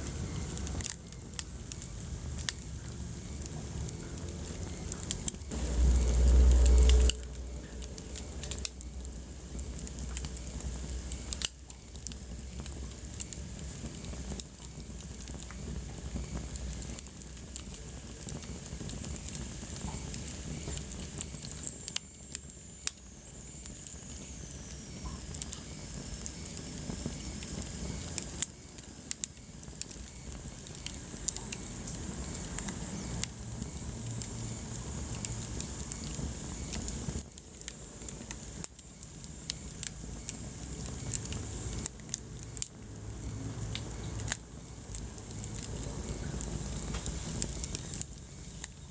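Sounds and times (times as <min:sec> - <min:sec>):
wood fire crackling and popping: 0:00.0 - 0:48.9
loud low rumble: 0:05.5 - 0:09.8.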